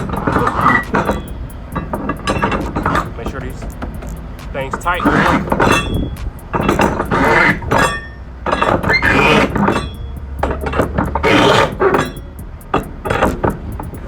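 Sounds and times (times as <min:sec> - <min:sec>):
steady low hum: 0:00.0 - 0:14.0
knocks and clicks of straps: 0:12.8 - 0:14.0.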